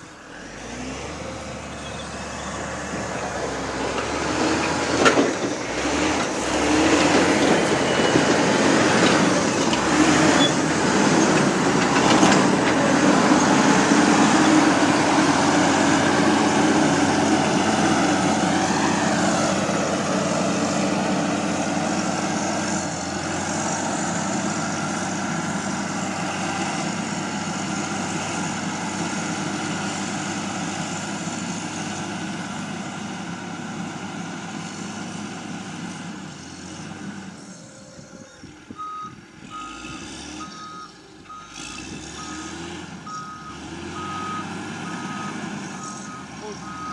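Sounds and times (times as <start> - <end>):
diesel machinery engine drone: 0.0 - 46.9.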